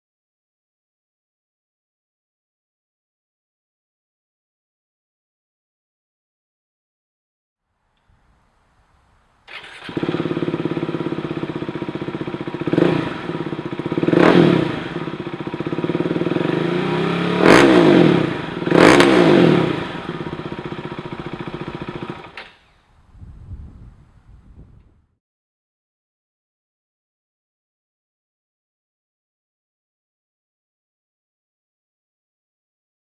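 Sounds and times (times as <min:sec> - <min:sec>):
motorcycle engine idling and revving: 0:09.5 - 0:22.6.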